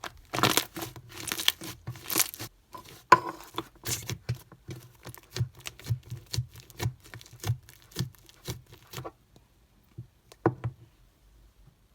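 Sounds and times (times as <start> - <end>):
sticky slime popping: 0.0 - 2.5.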